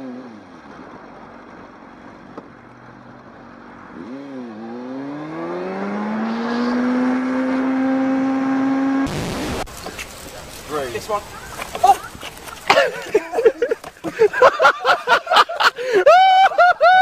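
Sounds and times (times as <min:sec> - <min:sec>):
engine revving: 0:03.7 - 0:09.7.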